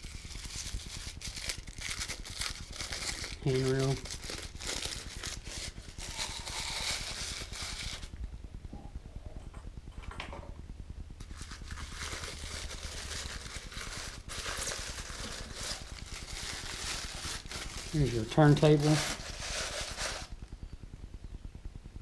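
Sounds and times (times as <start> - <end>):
plastic wrapping crinkling: 0.0 - 8.2, 11.2 - 20.4.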